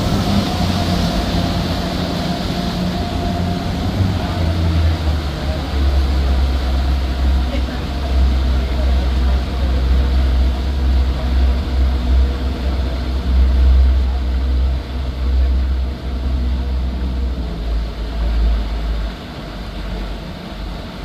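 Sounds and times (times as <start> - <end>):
boat engines droning: 0.0 - 21.0.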